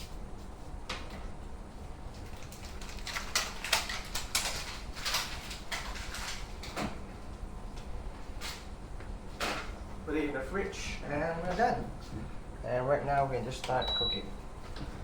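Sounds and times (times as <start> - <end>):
kitchen items rustling and scraping: 2.1 - 7.0.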